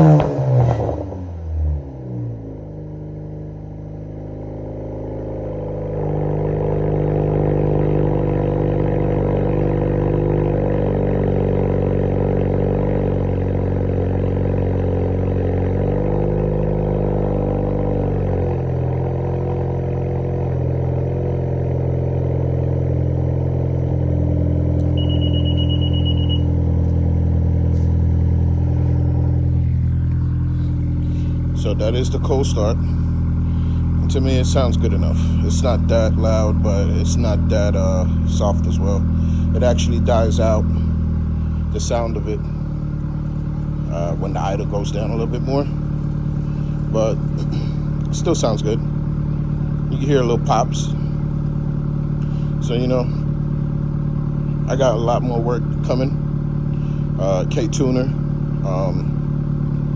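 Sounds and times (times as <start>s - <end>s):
car engine idling: 0.0s - 59.9s
short high beeping tone: 24.8s - 26.6s.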